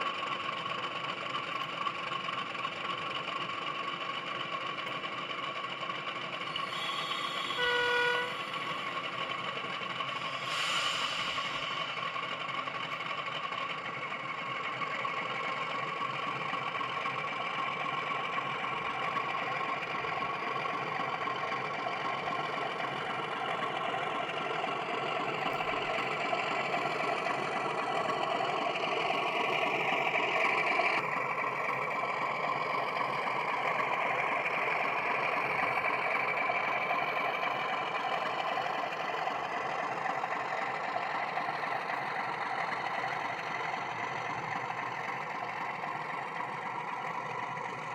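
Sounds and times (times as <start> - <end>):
model diesel engine sound: 0.0 - 47.9
model train wheels on track: 0.0 - 47.9.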